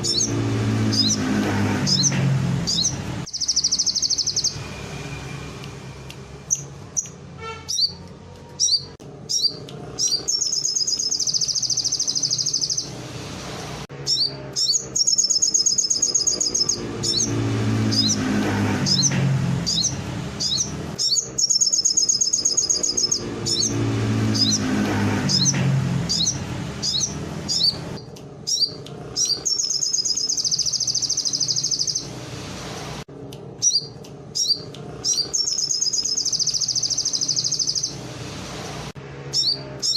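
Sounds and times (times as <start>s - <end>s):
songbird singing with trills: 1.9s - 4.6s, 8.6s - 12.9s, 14.1s - 18.2s, 18.9s - 24.7s, 25.3s - 32.1s, 33.6s - 38.0s, 39.3s - 39.9s.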